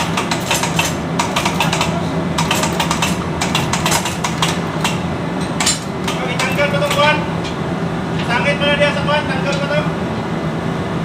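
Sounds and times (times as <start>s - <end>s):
hand tools tapping on metal: 0.0s - 7.6s
steady low hum: 0.0s - 11.0s.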